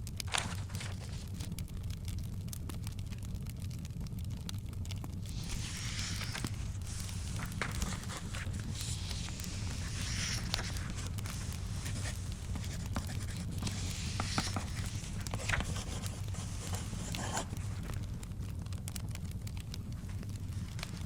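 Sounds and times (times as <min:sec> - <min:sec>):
small crackling clicks: 0:00.0 - 0:21.0
paper rustling: 0:00.3 - 0:01.5, 0:05.3 - 0:18.2, 0:19.9 - 0:21.0
steady low rumble: 0:05.0 - 0:21.0.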